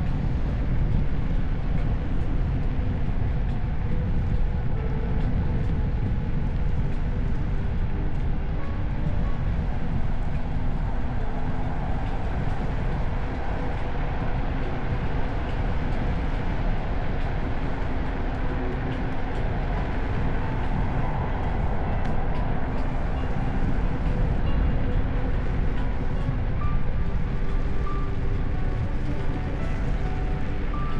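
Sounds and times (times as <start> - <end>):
faint motor whine: 0.0 - 30.9
wind buffeting microphone: 0.0 - 30.9.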